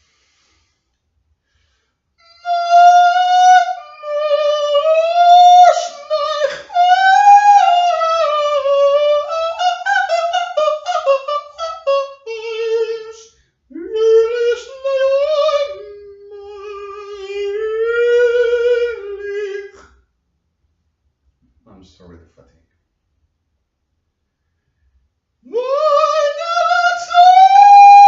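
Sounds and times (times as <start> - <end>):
person singing wordless melody: 2.2 - 19.9, 25.5 - 28.0.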